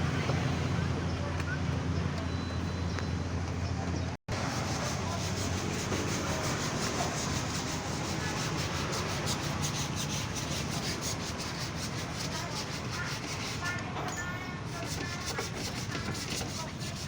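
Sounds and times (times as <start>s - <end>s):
brush scrubbing: 4.3s - 13.8s, 14.7s - 17.0s.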